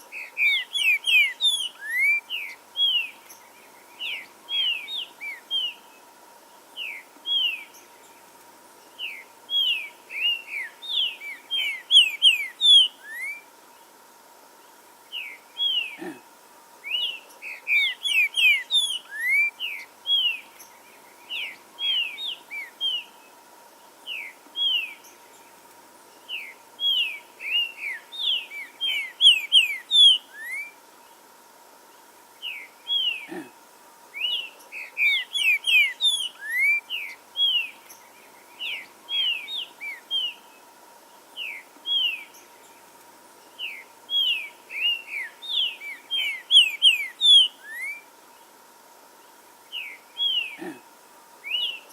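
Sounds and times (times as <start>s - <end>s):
bird singing whistled notes: 0.1s - 5.9s, 6.8s - 7.9s, 8.9s - 13.5s, 16.8s - 23.2s, 24.0s - 25.4s, 26.2s - 30.8s, 34.2s - 40.5s, 41.4s - 42.8s, 43.4s - 48.1s, 51.4s - 51.9s.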